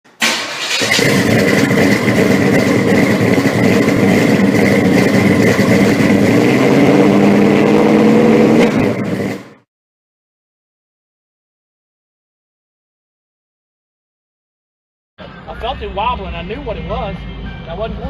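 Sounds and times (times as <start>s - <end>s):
car engine running loud: 0.2s - 9.6s.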